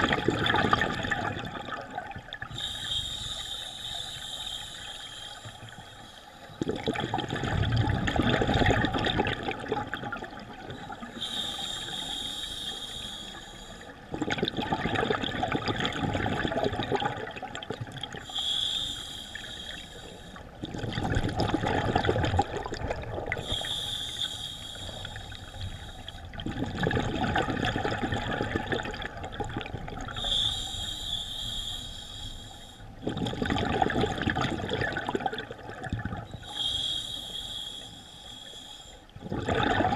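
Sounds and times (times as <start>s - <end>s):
exhaled bubbles gurgling: 0.0s - 31.5s, 32.9s - 37.2s, 39.1s - 39.9s
diver inhaling through regulator: 2.5s - 6.5s, 10.9s - 14.1s, 18.2s - 20.5s, 23.4s - 26.3s, 30.1s - 33.0s, 36.2s - 39.1s.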